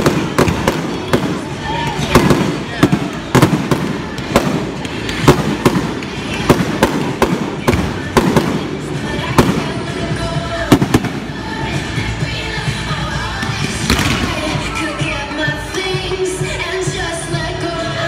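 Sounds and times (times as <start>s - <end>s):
fireworks bangs: 0.0s - 11.6s, 13.8s - 14.6s
music playing: 0.0s - 18.0s.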